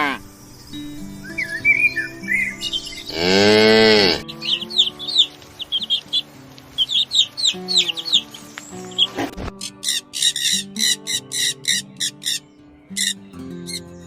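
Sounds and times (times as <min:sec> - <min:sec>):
high bird chirps: 0:00.0 - 0:14.0
cow mooing: 0:03.0 - 0:04.3.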